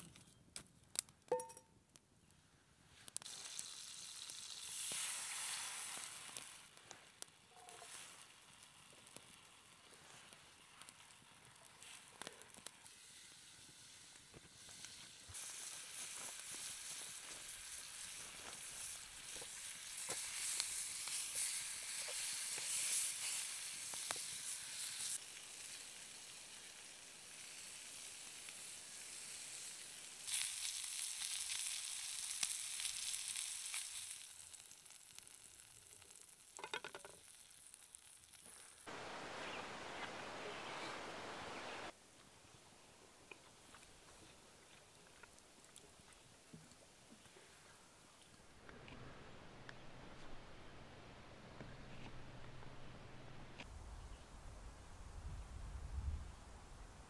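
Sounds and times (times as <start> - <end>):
meat sizzling in a frying pan: 3.2 - 38.9.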